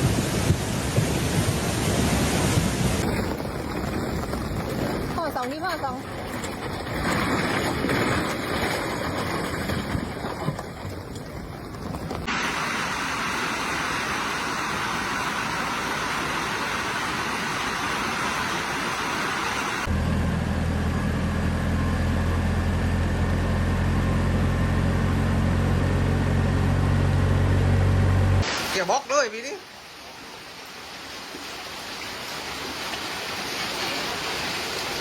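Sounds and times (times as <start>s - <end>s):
steady rushing noise: 0.0s - 5.3s, 12.2s - 19.9s
engine running steadily: 12.1s - 28.5s.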